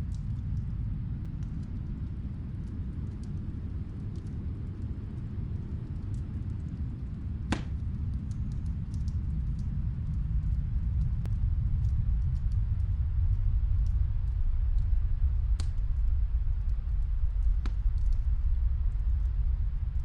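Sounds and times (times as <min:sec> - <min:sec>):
fireplace crackles: 0:00.0 - 0:20.0
low wind rumble: 0:00.0 - 0:20.0
sharp fire pop: 0:07.5 - 0:07.8.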